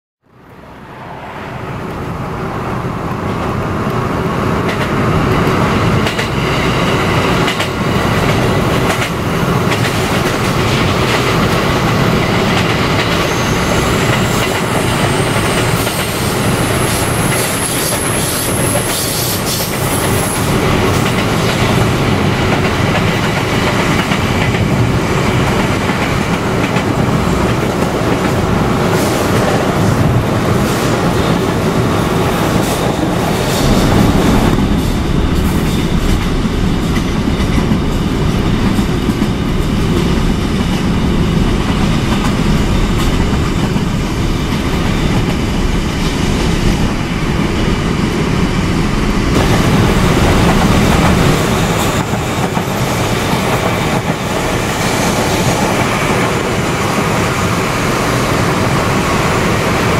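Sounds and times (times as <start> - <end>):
train rumbling at speed: 0.2 - 59.9.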